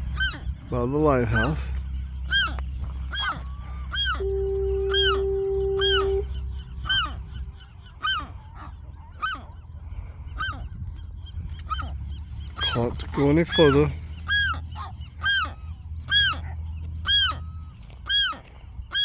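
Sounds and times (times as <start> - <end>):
steady low tone: 0.0 - 11.2
low rumble: 0.0 - 13.2
gulls calling: 0.0 - 19.0.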